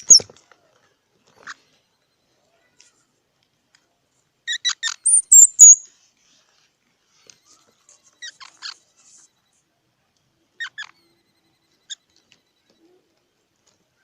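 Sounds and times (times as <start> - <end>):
squirrel chirps: 0.0 - 0.3, 4.5 - 5.9, 10.6 - 12.2
squirrel squeaks: 0.0 - 0.4, 4.5 - 5.9, 7.5 - 9.3, 10.6 - 12.2.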